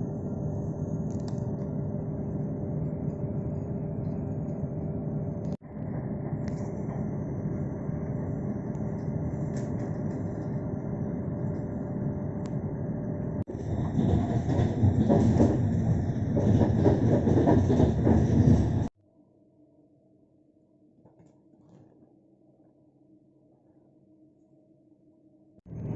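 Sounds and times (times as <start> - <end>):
train rumbling on rails: 0.0 - 18.9, 25.7 - 25.9
wheels clattering over rail joints: 13.5 - 18.9.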